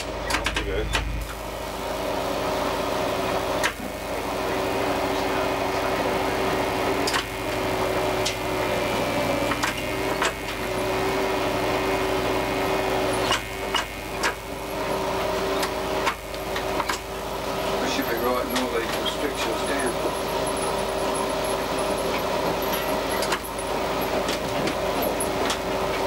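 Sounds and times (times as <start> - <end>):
engine and transmission hum: 0.0 - 26.0
train running noise: 2.9 - 26.0
wheels clicking: 13.0 - 26.0.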